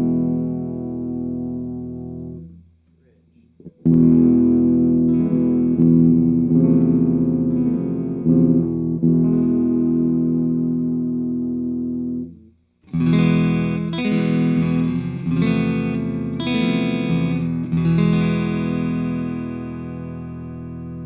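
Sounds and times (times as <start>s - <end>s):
acoustic guitar chords: 12.9s - 21.0s.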